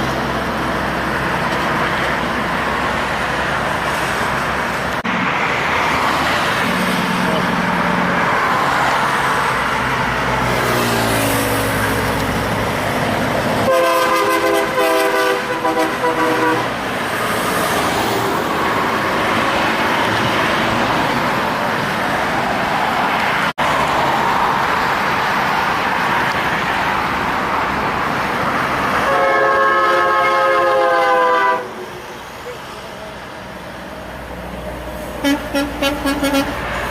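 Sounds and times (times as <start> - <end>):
heavy trucks passing: 0.0 - 36.9
truck air horn: 13.6 - 16.8, 29.0 - 31.9, 35.2 - 36.9.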